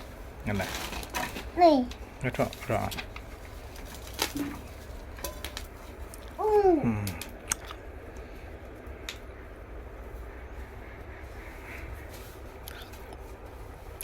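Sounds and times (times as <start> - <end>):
packaging clicks and rustles: 2.3 - 6.3.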